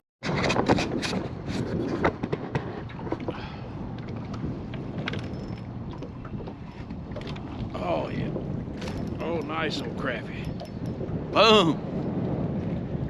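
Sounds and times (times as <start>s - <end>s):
water slapping against boat: 0.2s - 13.0s
wind buffeting: 0.2s - 13.0s.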